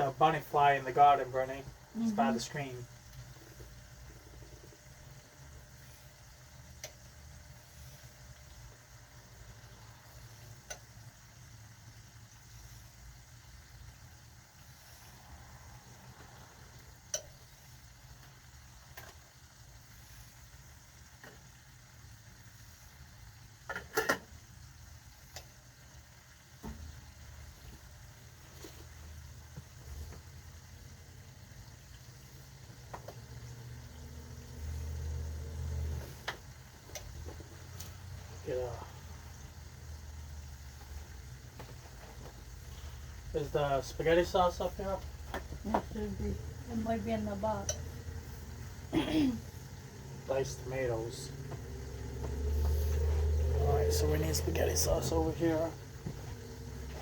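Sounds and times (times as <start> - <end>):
pot of water boiling: 0.0 - 57.0.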